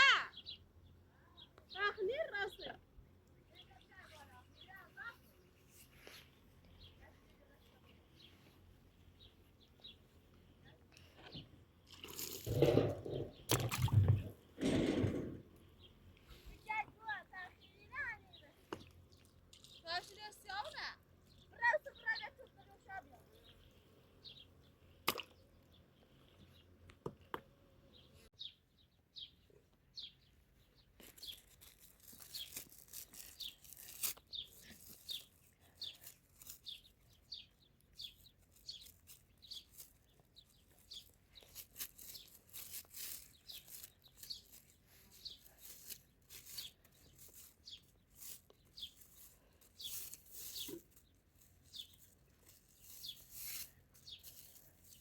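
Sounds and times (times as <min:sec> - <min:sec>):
small birds chirping: 0:00.0 - 0:55.0
rustles: 0:30.6 - 0:55.0.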